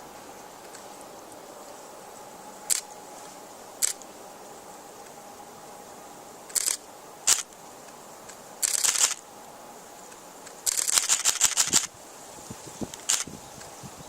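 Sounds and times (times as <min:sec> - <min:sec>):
faint outdoor hiss: 0:00.0 - 0:14.0
camera shutter clicks: 0:02.7 - 0:02.9, 0:03.8 - 0:04.1, 0:06.5 - 0:07.5, 0:08.3 - 0:09.2, 0:10.6 - 0:11.9, 0:12.9 - 0:13.3.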